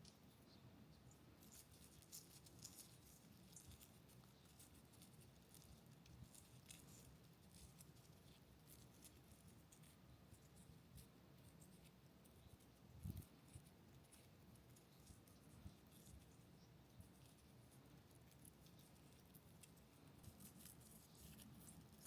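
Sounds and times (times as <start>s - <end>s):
small handling sounds: 0.0s - 22.0s.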